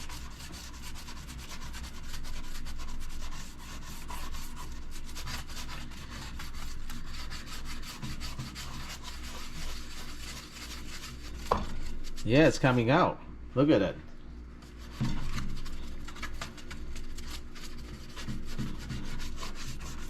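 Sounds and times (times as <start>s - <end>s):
scrubbing oven door: 4.1s - 12.9s, 14.6s - 20.0s.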